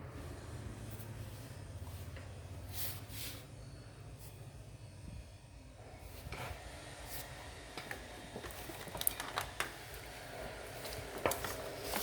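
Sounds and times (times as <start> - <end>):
small parts and tools clicking: 7.8 - 12.0.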